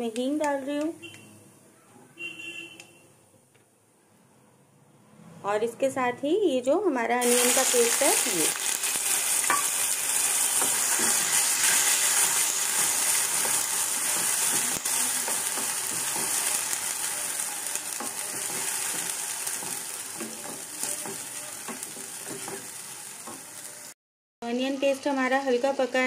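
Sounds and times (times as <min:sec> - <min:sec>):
paste sizzling in hot oil: 0:07.2 - 0:24.0
wooden spatula scraping pan: 0:18.0 - 0:23.5.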